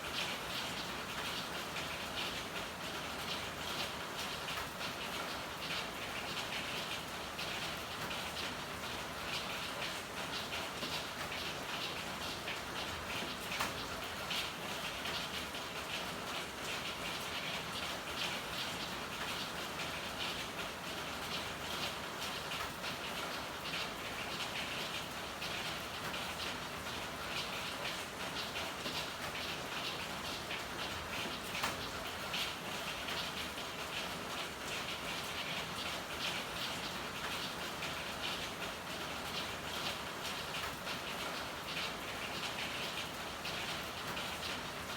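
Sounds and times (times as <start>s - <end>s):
rain pattering on hard surfaces: 0.0s - 44.9s.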